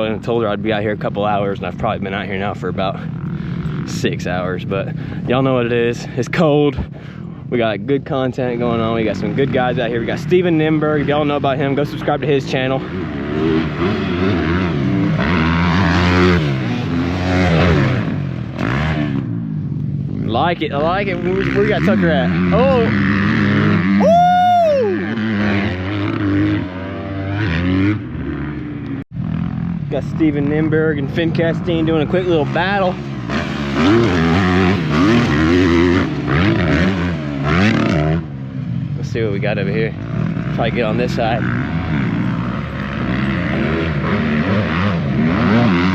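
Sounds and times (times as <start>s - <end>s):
dirt bike engine revving: 8.2s - 45.9s.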